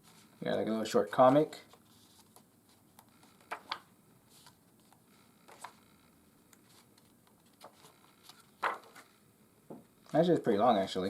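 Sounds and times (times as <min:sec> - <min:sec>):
paper pages turning: 0:00.0 - 0:05.8, 0:06.6 - 0:09.1.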